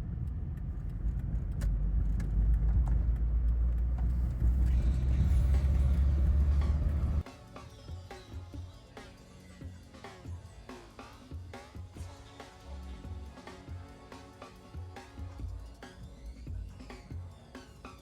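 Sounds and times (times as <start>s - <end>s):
car engine and exhaust rumbling: 0.0s - 7.2s.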